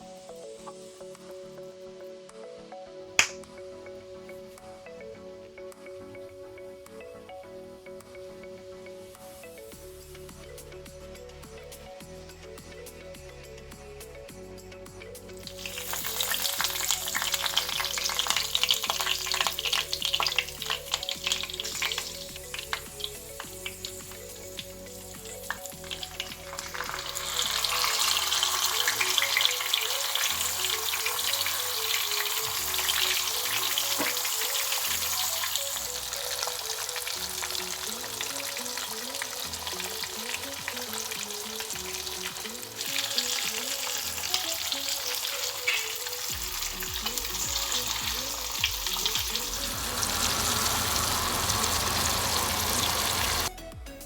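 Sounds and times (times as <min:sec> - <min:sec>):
fish sizzling in hot oil: 0:15.4 - 0:53.5.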